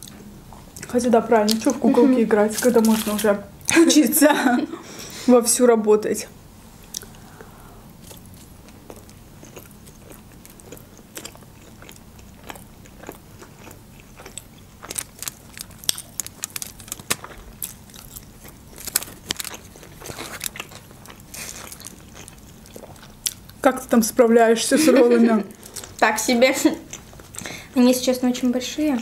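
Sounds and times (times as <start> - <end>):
people chewing: 0.0 - 5.3, 6.7 - 27.8.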